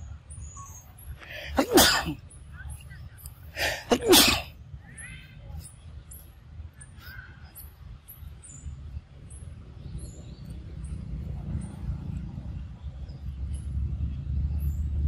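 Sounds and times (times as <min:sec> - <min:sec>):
high-pitched bird chirps: 0:04.8 - 0:10.6.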